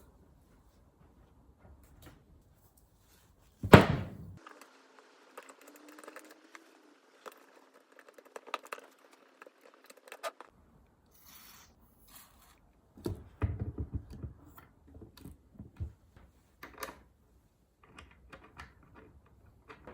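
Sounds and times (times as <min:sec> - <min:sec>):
loud thud: 0:03.6 - 0:04.4.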